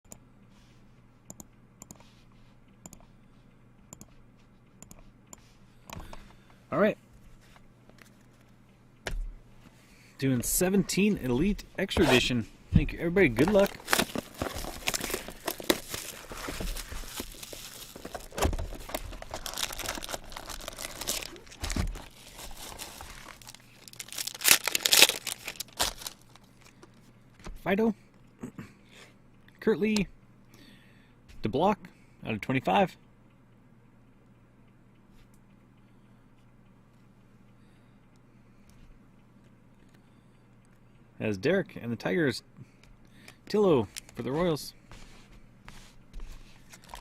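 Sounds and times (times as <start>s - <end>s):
plastic wrapping torn and crinkled: 13.4s - 26.7s, 46.7s - 47.0s.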